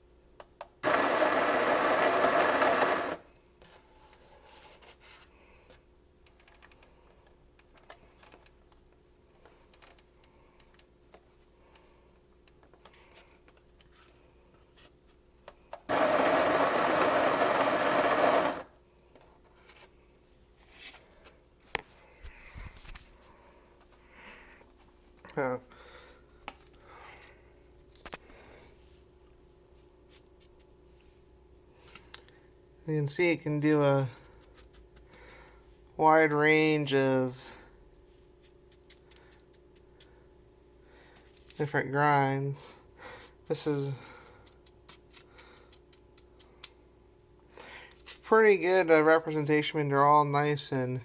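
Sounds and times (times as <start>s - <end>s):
coffee grinder grinding beans: 0.8s - 3.3s, 15.9s - 18.8s.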